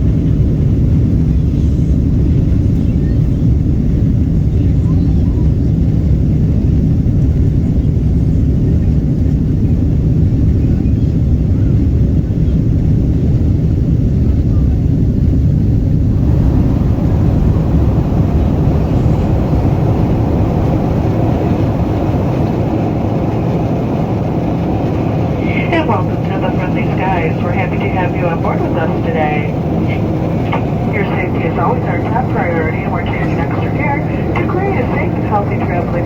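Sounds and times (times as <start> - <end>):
jet engine rumble in cabin: 0.0 - 36.0
rushing air: 16.0 - 35.3.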